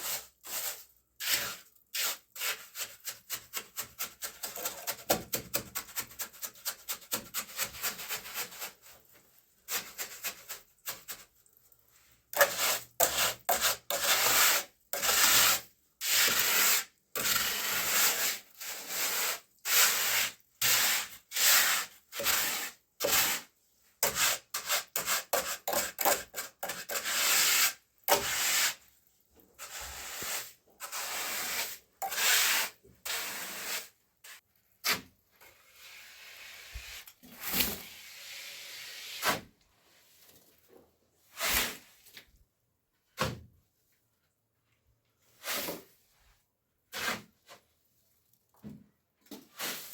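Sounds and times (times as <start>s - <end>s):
hand tool scraping hard surface: 12.3s - 23.4s, 24.0s - 28.8s, 29.6s - 33.9s.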